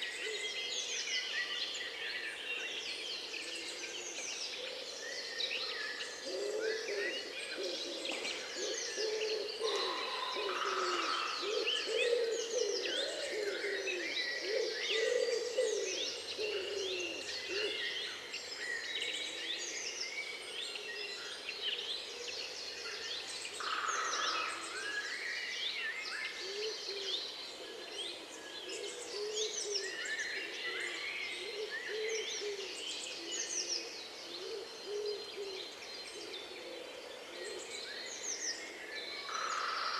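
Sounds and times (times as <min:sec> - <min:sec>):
birds chirping and trilling: 0:00.0 - 0:39.9
low hooting or cooing call: 0:06.2 - 0:18.0, 0:26.3 - 0:37.8.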